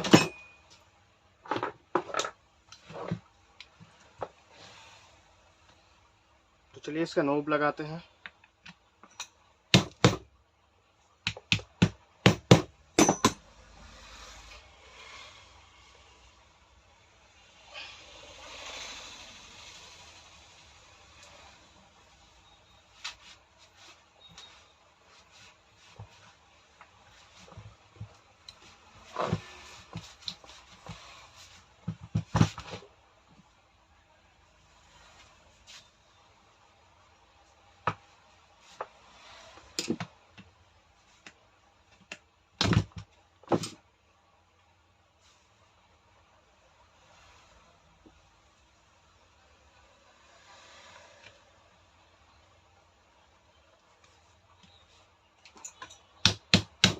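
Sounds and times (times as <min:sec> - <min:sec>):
tool parts clicking and knocking: 0:00.0 - 0:00.6, 0:11.2 - 0:13.5, 0:39.8 - 0:40.1.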